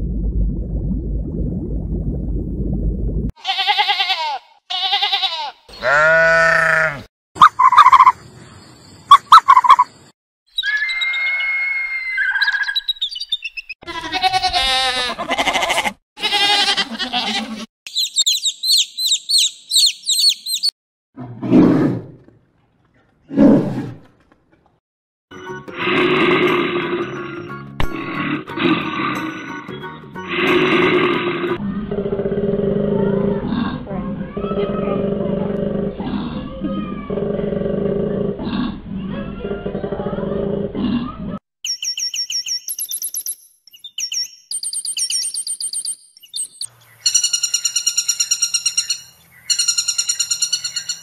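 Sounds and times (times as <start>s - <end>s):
low underwater rumble: 0.0s - 3.3s
sheep bleating: 3.4s - 7.1s, 13.8s - 17.7s
rapid high chirps: 17.9s - 20.7s.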